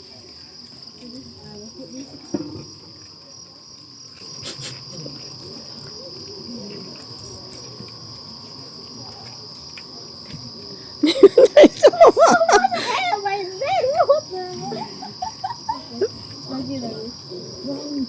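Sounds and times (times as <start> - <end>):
chorus of rainforest insects: 0.0 - 18.0
faint murmuring voices: 0.0 - 18.0.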